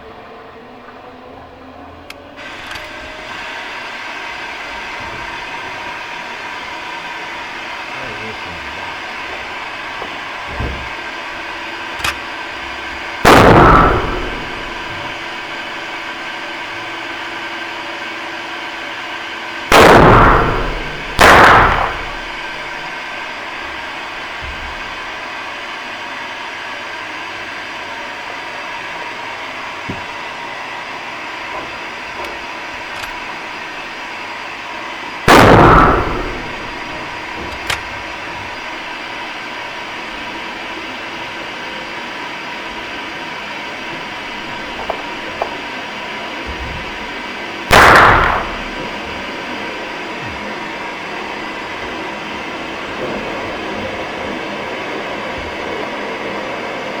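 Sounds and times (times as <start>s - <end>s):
sharp click: 12.0s - 12.2s
rifle shot: 13.2s - 15.4s, 19.7s - 22.9s, 35.3s - 38.2s, 47.7s - 49.0s.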